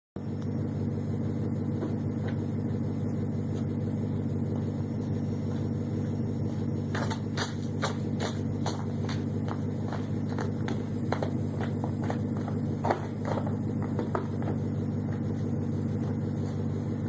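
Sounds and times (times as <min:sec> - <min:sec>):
car engine idling: 0:00.2 - 0:17.0
footsteps: 0:01.8 - 0:02.5, 0:04.5 - 0:17.0.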